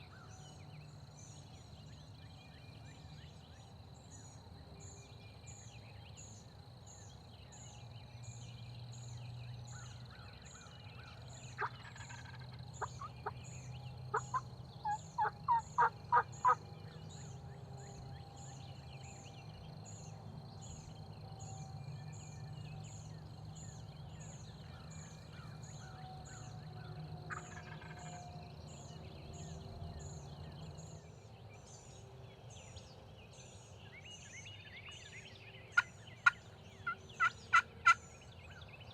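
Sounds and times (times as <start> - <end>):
wild turkey yelping: 11.6 - 13.4, 14.1 - 16.6, 27.3 - 28.0, 36.2 - 38.0.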